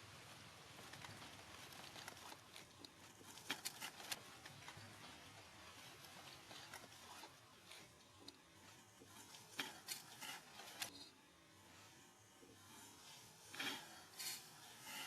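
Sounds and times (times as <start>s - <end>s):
quiet hiss: 0.0s - 15.0s
faint clicks and taps: 0.3s - 11.1s.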